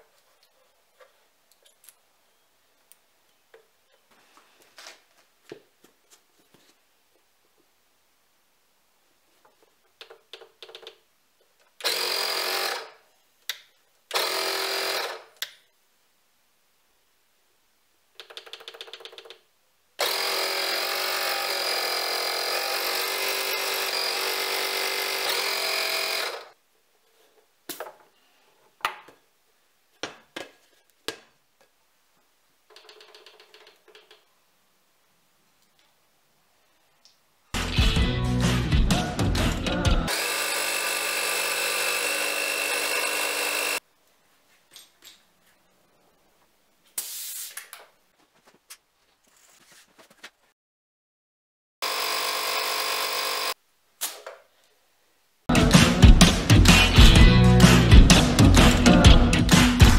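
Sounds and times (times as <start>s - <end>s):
tyre inflator compressor buzzing: 20.0s - 26.5s, 40.1s - 43.8s, 51.8s - 53.6s.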